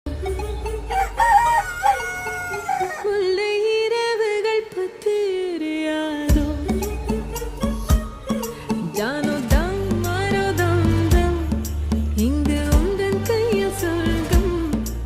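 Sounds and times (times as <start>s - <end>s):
music: 0.1s - 1.2s, 3.0s - 15.0s
rooster crowing: 0.9s - 3.3s.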